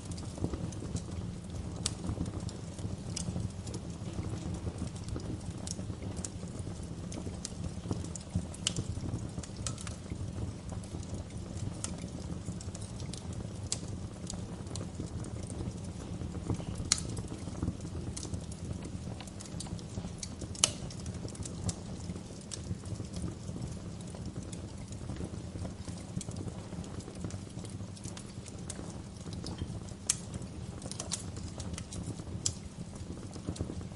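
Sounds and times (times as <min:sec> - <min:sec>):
fire crackling and popping: 0:00.0 - 0:33.9
low rumble of flames: 0:00.0 - 0:33.9.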